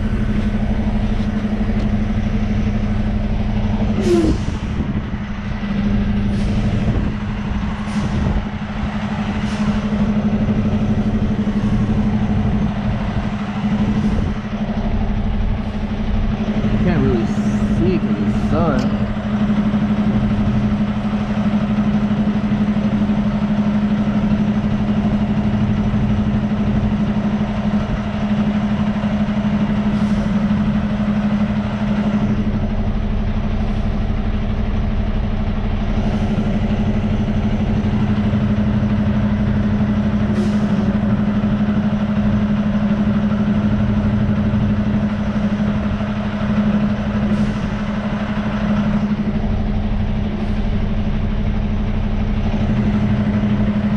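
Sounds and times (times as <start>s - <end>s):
truck diesel engine running: 0.0s - 53.9s.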